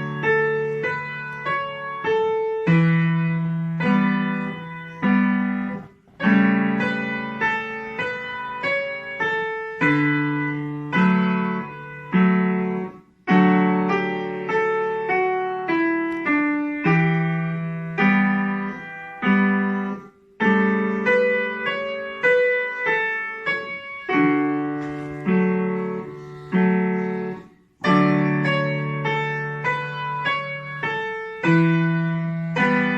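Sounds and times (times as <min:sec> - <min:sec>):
slow piano melody: 0:00.0 - 0:32.9.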